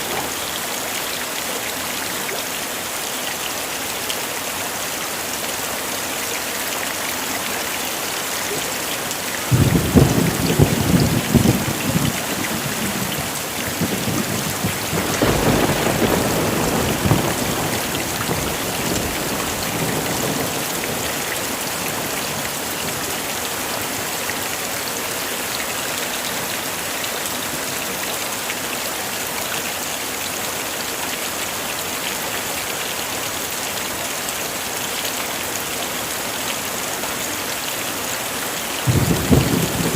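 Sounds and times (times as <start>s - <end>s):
heavy rain falling: 0.0s - 39.9s
thunder rumbling: 9.5s - 21.2s, 38.9s - 39.9s.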